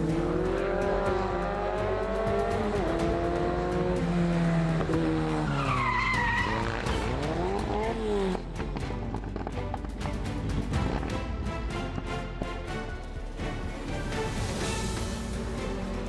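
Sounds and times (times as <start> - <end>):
rally car engine revving: 0.0 - 11.4, 14.8 - 16.0
tyre squeal: 4.9 - 7.5.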